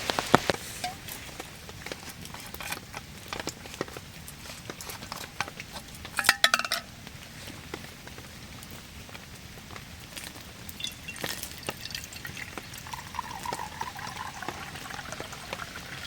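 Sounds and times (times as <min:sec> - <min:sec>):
rain dripping: 0:00.0 - 0:02.0, 0:06.0 - 0:16.0
metal cookware clinking: 0:00.8 - 0:01.2, 0:06.2 - 0:06.9.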